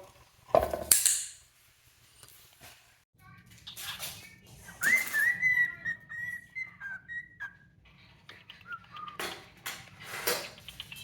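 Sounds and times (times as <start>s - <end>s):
harsh bird chirps: 4.6s - 11.0s
cockatiel whistling: 4.7s - 7.7s.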